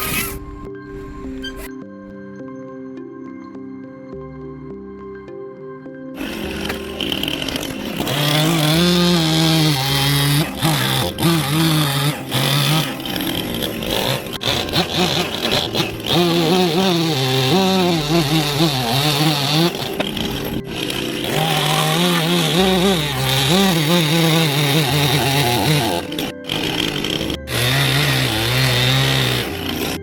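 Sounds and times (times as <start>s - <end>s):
chainsaw carving wood: 0.0s - 0.4s, 6.2s - 30.0s.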